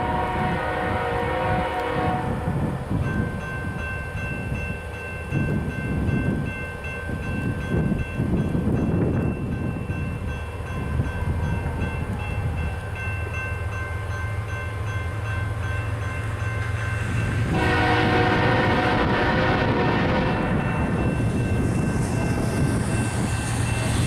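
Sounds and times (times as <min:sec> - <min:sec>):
train air horn chord: 0:00.0 - 0:02.6, 0:17.5 - 0:20.7
diesel locomotive rumbling: 0:00.0 - 0:24.0.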